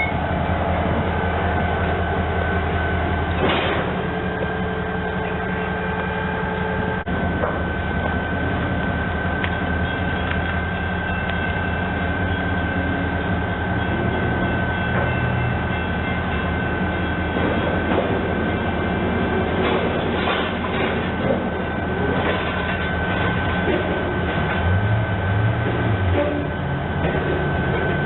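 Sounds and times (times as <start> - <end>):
high whine: 0.0 - 25.2
train engine drone: 0.0 - 28.0
wheel clicks over rail joints: 19.4 - 24.9.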